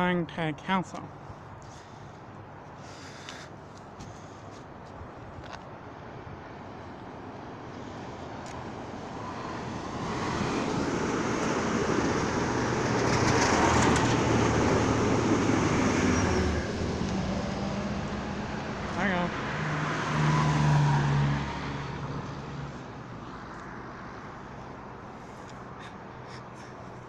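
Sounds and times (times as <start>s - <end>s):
train wheels rumbling on rails: 9.7s - 17.6s.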